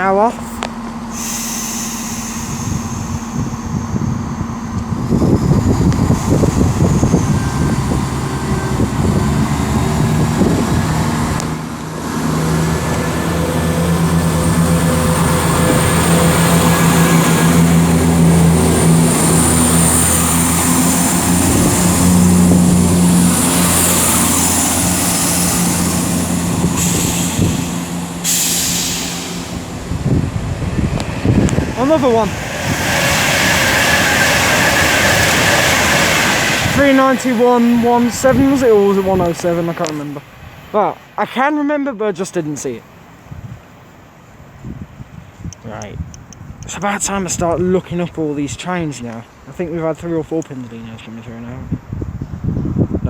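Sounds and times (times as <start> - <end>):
train rail and wheel noise: 0.0 - 41.3.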